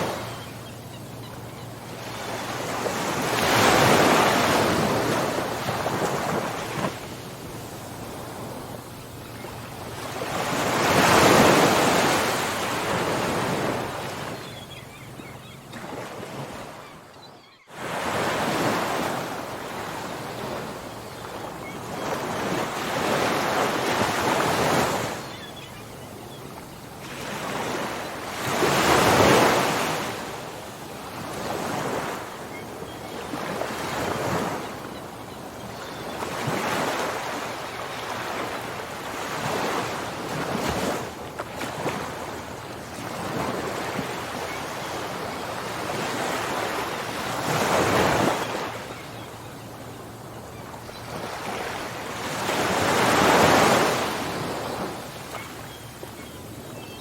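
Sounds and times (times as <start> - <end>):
ocean waves breaking: 0.0 - 16.9, 17.7 - 56.6.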